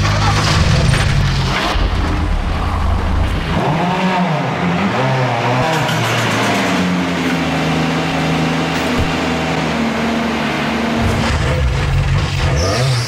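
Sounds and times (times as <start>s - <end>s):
car engine revving hard: 3.2s - 13.0s.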